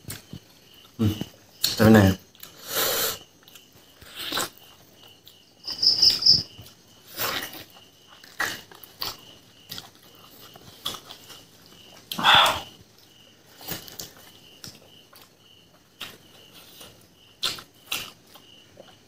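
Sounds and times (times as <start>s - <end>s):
cricket chirping: 0.0s - 19.0s
biting and chewing mouth sounds: 3.4s - 5.5s, 6.5s - 19.0s.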